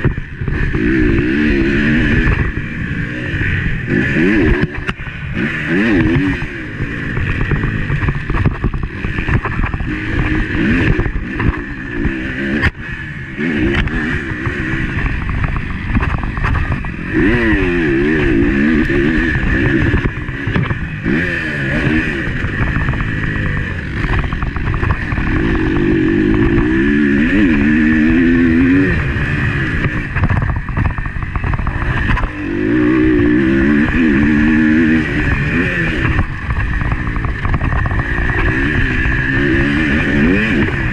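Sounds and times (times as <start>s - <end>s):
motocross bike engine revving: 0.0s - 40.9s
rough low rumble: 13.8s - 40.9s.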